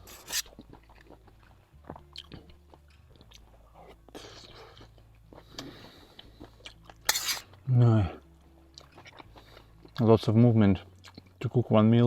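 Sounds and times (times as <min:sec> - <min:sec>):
person chewing food: 0:00.0 - 0:07.6, 0:08.5 - 0:10.0, 0:11.0 - 0:11.3.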